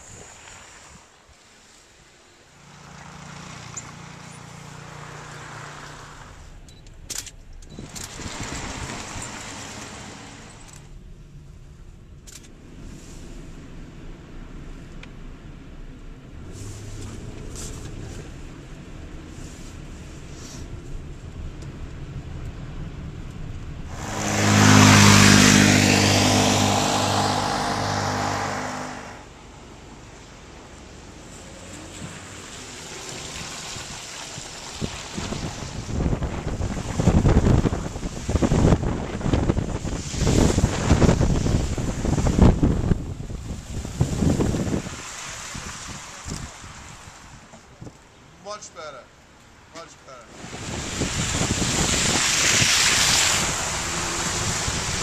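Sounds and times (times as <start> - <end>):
vehicle driving past: 2.5 - 6.5, 23.9 - 30.3.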